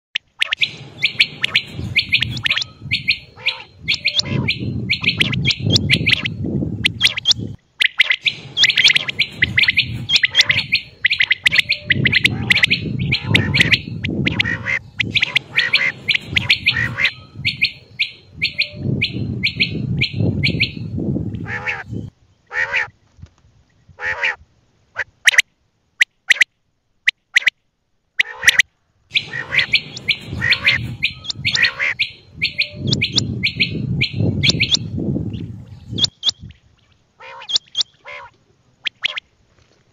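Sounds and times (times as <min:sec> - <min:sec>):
quail chirping: 0:00.2 - 0:22.8, 0:28.2 - 0:36.5, 0:37.2 - 0:39.2
low rumbling background noise: 0:00.6 - 0:25.0.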